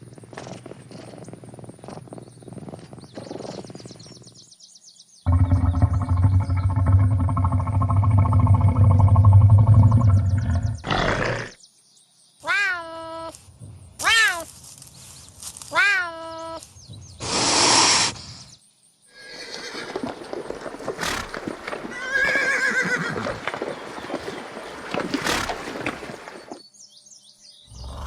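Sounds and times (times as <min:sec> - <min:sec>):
big cat roaring: 0:05.3 - 0:11.6.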